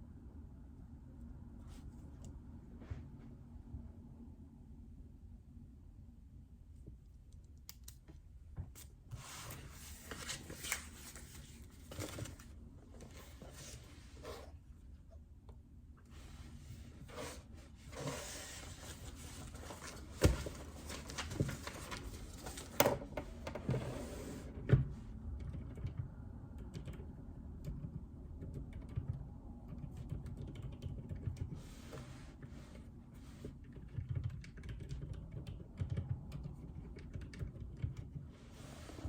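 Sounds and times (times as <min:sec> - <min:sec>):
typing on mechanical keyboard: 0:25.4 - 0:31.6, 0:33.6 - 0:38.2.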